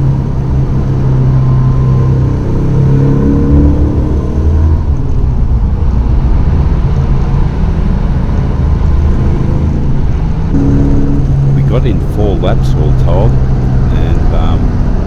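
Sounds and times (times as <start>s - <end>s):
car engine running hard: 0.0s - 15.0s.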